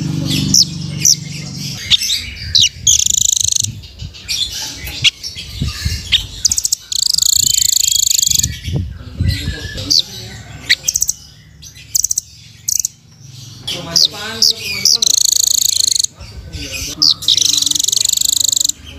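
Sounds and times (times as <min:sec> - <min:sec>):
bird trilling and chirping: 0:00.0 - 0:18.9.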